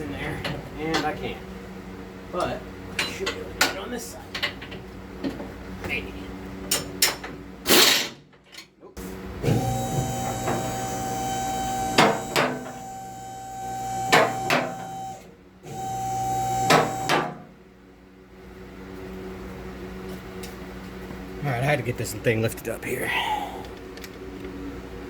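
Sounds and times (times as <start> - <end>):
hydraulic pump motor running: 9.4 - 17.5.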